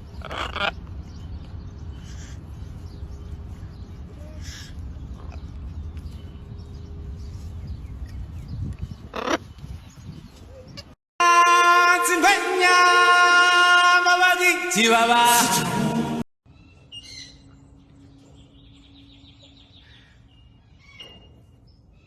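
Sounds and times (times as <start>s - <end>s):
bird harsh calls: 0.0s - 6.4s, 8.9s - 11.0s.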